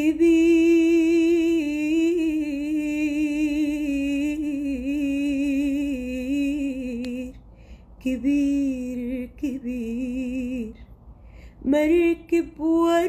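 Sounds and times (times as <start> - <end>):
woman singing a long held note: 0.0 - 7.4.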